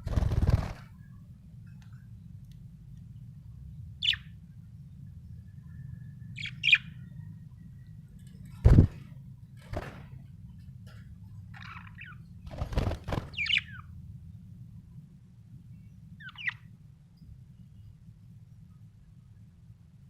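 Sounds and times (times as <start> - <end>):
budgerigar chirps: 16.2 - 16.6.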